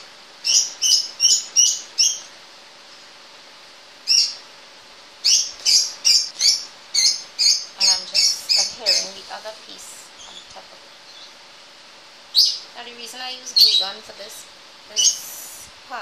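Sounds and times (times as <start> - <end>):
bird chirping: 0.0 - 2.3, 4.0 - 4.5, 5.2 - 9.3, 10.2 - 11.4, 12.3 - 12.8, 13.5 - 14.1, 14.9 - 15.4.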